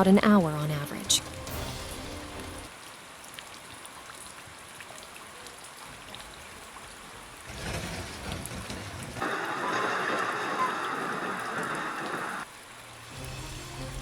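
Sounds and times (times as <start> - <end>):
water hissing: 9.2 - 14.0.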